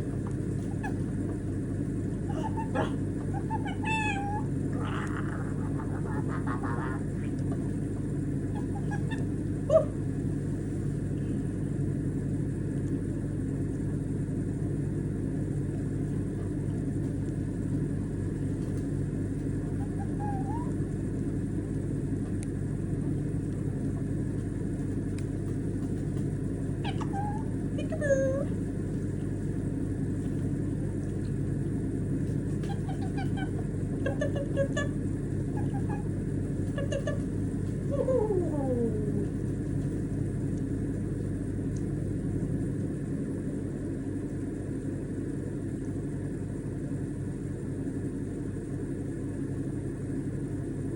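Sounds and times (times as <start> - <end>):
parrot squeaks and chirps: 2.3 - 4.4, 8.5 - 9.9, 26.8 - 27.5, 32.6 - 36.1.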